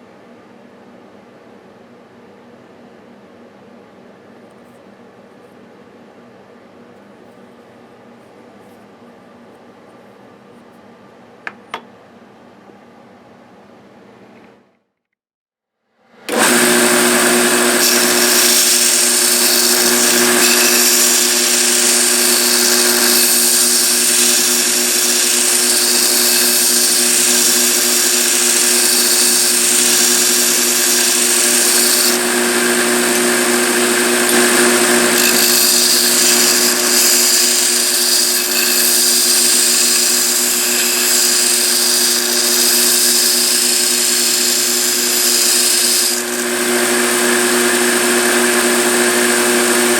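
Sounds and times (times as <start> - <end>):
power grinder on steel: 16.3 - 49.9.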